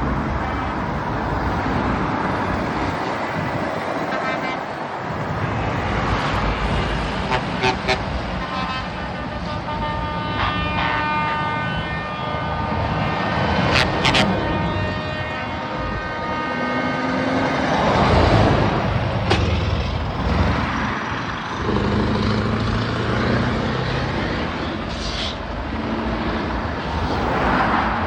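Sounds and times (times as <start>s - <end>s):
truck engines running: 0.0s - 28.0s
held air horn chord: 7.3s - 12.8s
air horn toots: 7.3s - 17.3s.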